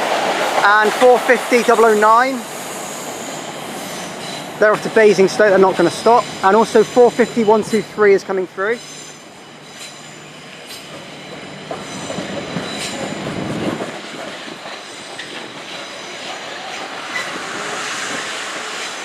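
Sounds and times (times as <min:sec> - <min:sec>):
train wheels clattering over rail joints: 0:08.8 - 0:19.0.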